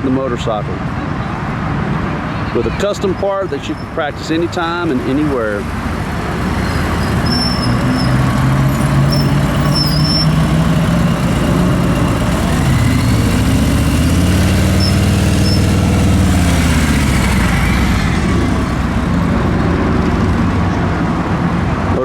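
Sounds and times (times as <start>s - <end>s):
motorcycle engine running: 5.5s - 21.6s.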